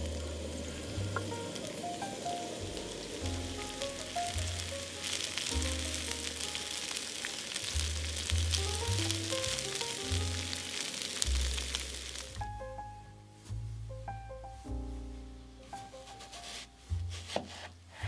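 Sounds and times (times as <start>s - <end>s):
food sizzling in a pan: 0.0s - 12.6s, 15.7s - 17.4s
background music: 0.0s - 18.0s.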